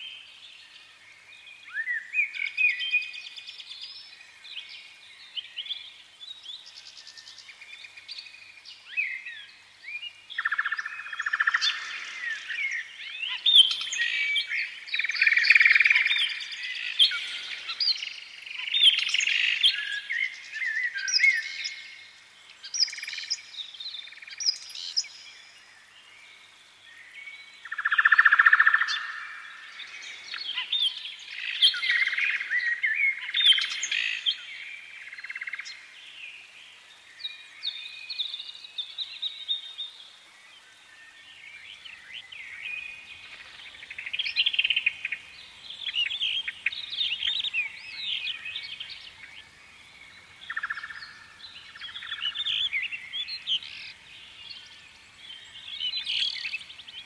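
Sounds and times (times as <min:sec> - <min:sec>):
birds chirping and singing: 0:10.0 - 0:25.6, 0:40.7 - 0:57.0.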